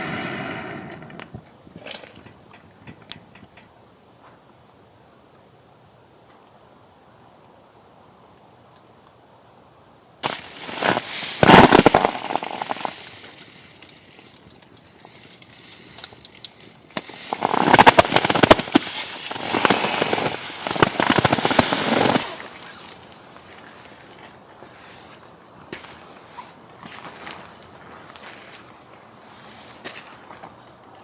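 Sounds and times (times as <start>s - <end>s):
rapid crackling and snapping: 10.2s - 23.7s.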